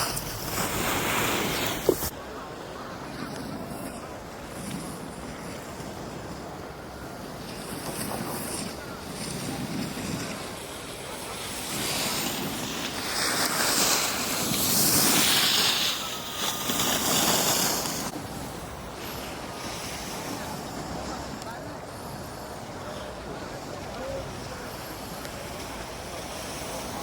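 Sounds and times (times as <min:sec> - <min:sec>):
ski edges scraping snow: 0:00.0 - 0:02.1, 0:11.4 - 0:18.2.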